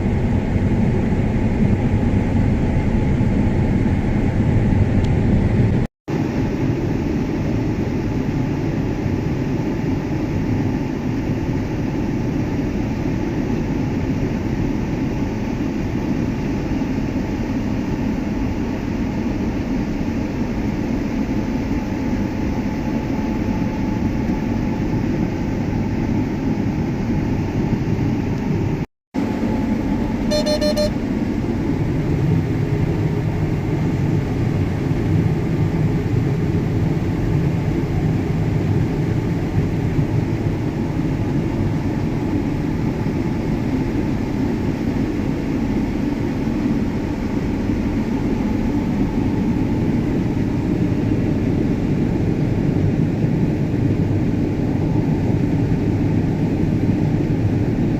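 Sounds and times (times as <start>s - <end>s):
short electronic beep: 30.3s - 31.0s.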